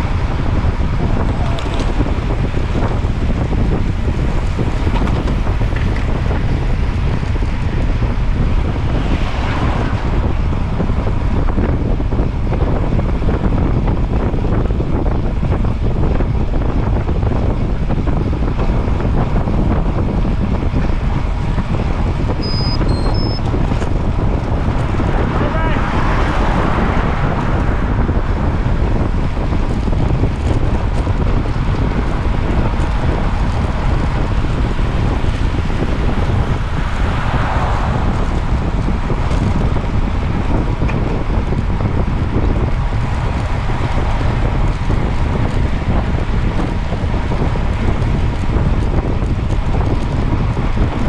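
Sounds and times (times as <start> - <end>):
wind buffeting microphone: 0.0 - 51.0
short high beeps: 22.4 - 23.4.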